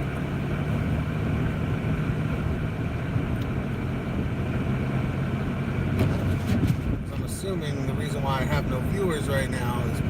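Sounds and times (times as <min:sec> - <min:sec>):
engine and road noise in car cabin: 0:00.0 - 0:10.0.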